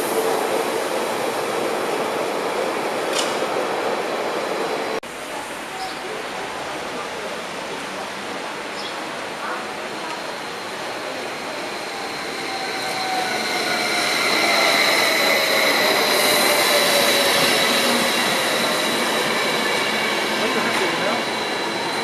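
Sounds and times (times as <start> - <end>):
train wheels rushing on rail: 0.0 - 5.0, 9.4 - 22.0.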